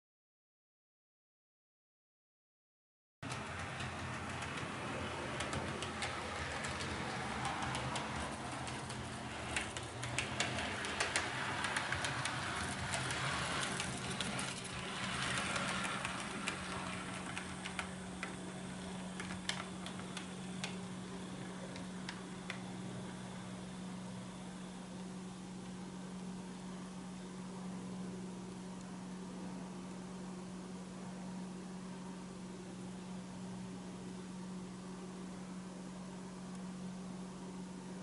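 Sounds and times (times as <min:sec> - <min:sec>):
wheels clicking over rail joints: 0:03.3 - 0:20.8
model train motor hum: 0:03.3 - 0:23.2.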